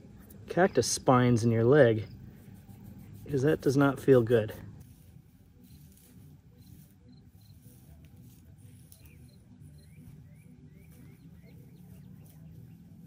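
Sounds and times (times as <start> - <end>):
low steady rumble: 0.0 - 13.0
faint bird chirps: 5.6 - 7.9, 8.6 - 13.0.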